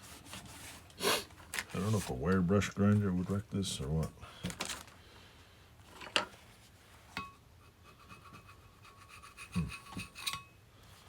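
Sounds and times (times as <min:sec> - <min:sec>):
faint scraping on metal vise: 0:07.1 - 0:10.5.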